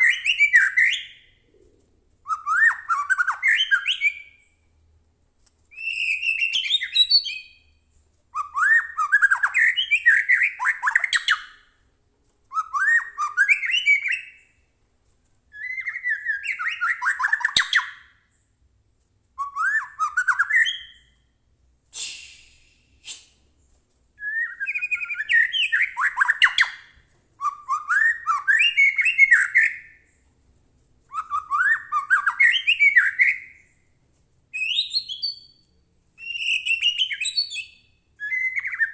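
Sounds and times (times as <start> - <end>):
bird harsh hissing call: 21.9 - 23.4
songbird singing varied phrases: 24.2 - 30.1, 36.2 - 38.9.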